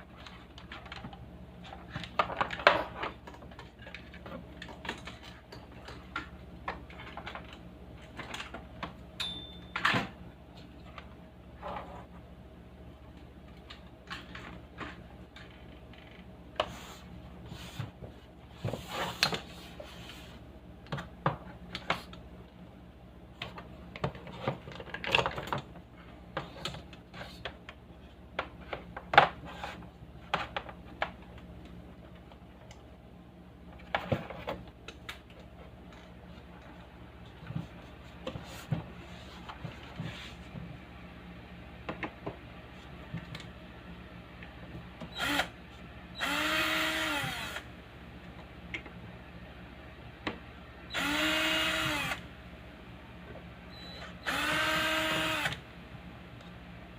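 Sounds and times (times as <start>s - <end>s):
faint electrical hum: 0.0s - 56.9s.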